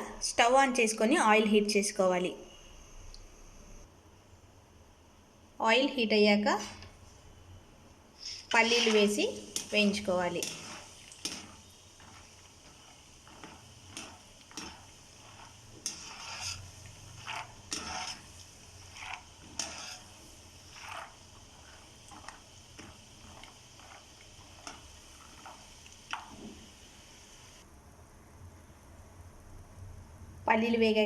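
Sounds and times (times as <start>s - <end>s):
ladle scraping metal pan: 8.2s - 26.3s
peanuts sizzling in oil: 8.2s - 27.7s.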